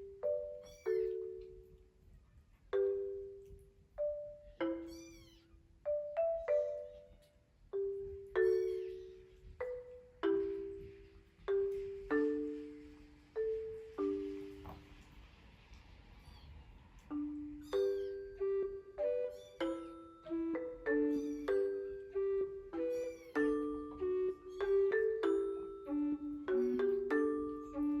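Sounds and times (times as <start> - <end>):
slow marimba music: 0.0 - 2.0, 2.7 - 15.3, 17.0 - 28.0
kitten meowing: 0.6 - 1.3, 4.6 - 5.6, 8.4 - 9.5, 16.2 - 16.6, 17.6 - 18.3, 19.2 - 20.0, 21.0 - 21.9, 22.8 - 24.8.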